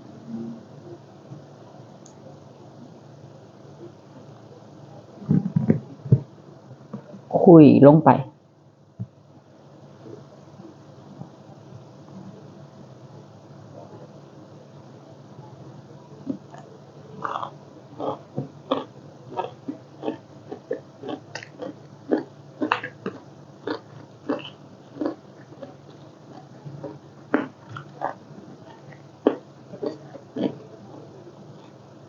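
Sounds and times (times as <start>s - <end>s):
steady low hum: 0.0s - 32.0s
person chewing with wet smacks: 16.2s - 30.8s, 31.4s - 31.8s.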